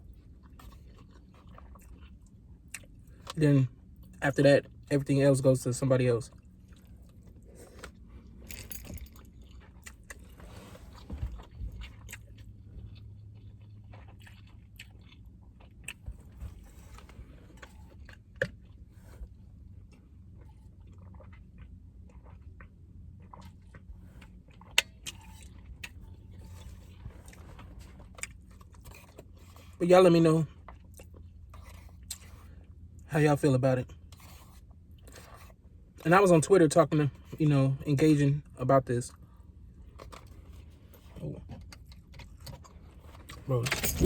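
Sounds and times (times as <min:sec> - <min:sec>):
chewing mouth sounds: 0:00.0 - 0:03.4, 0:09.1 - 0:29.8.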